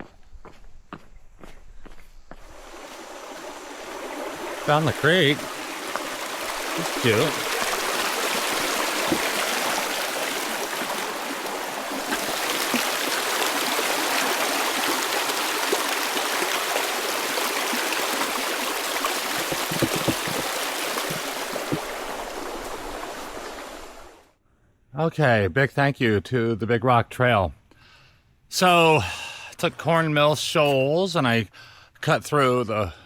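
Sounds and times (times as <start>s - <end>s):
creek babbling over rocks: 2.5s - 24.2s.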